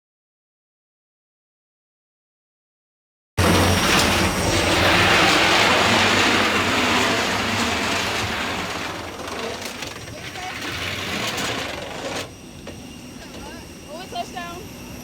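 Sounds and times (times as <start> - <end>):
airliner cabin rushing roar: 3.4 - 14.5.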